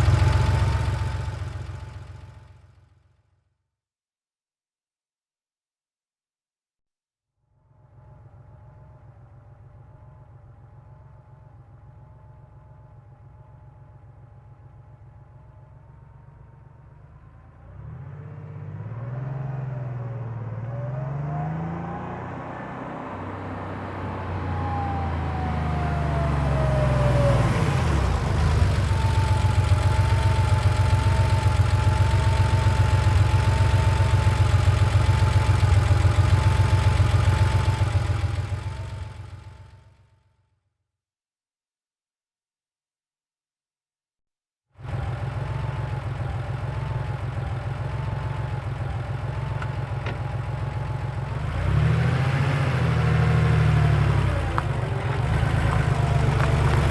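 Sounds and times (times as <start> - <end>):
car engine passing: 17.6 - 29.6, 51.4 - 56.9.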